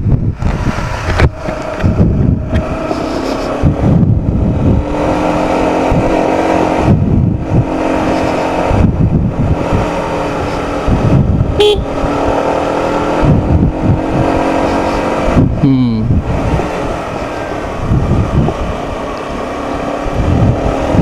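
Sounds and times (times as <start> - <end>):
motorcycle engine running: 0.0 - 19.1
wind buffeting microphone: 0.0 - 21.0
high-pitched tone: 11.6 - 11.9.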